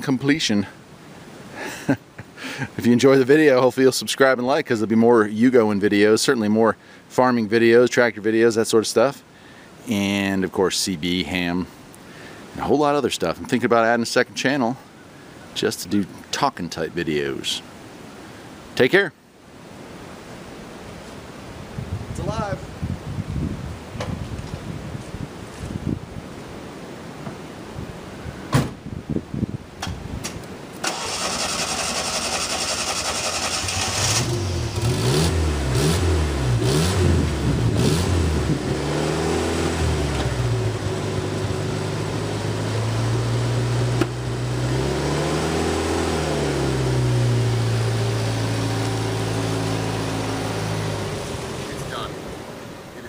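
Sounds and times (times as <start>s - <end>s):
car engine starting and revving: 30.8s - 52.7s.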